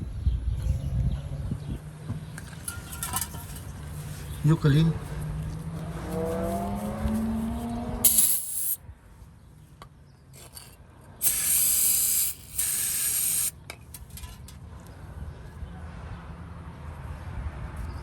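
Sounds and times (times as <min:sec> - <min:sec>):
pressurised spray hissing: 0:08.0 - 0:08.8, 0:11.2 - 0:13.5.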